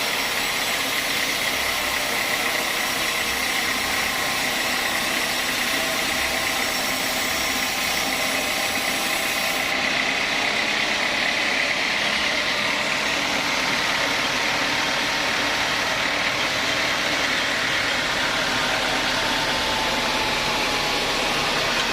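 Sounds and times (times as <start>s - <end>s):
sawmill machinery running: 0.0s - 21.9s.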